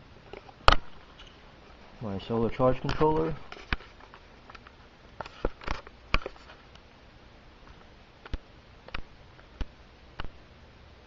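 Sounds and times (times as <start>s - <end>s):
faint steady hum: 0.0s - 11.0s
sharp clicks and light knocks: 2.8s - 6.8s, 7.7s - 10.4s.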